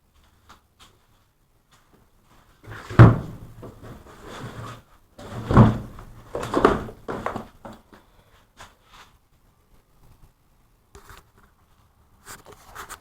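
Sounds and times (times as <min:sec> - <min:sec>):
door clunking and rattling: 0:02.7 - 0:07.6.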